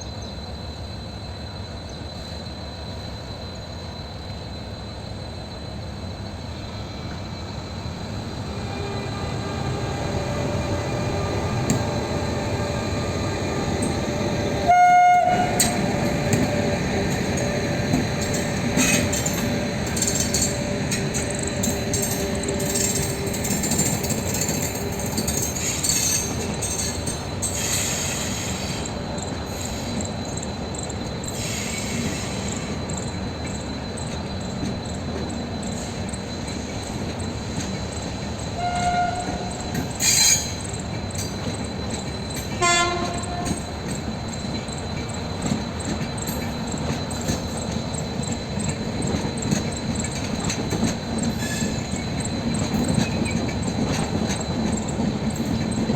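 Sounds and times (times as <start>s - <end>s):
train rumbling: 0.0s - 55.9s
train horn blast: 8.6s - 10.4s, 14.6s - 15.9s, 38.6s - 39.6s, 42.6s - 43.8s.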